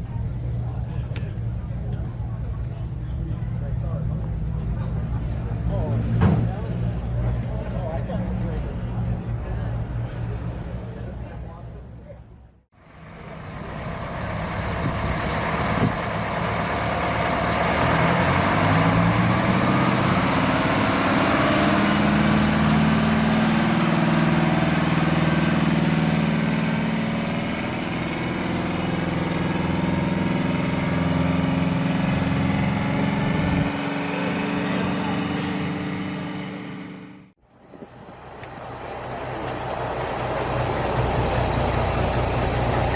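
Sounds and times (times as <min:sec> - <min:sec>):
truck engine revving: 0:12.9 - 0:42.9.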